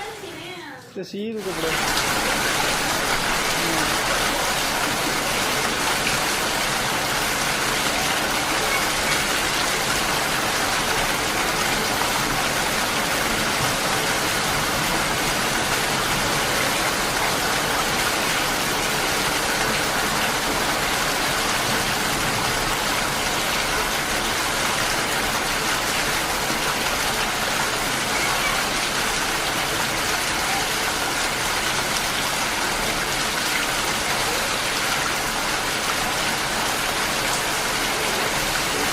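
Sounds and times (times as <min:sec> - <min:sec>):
heavy rain on hard surfaces: 0:00.0 - 0:38.9.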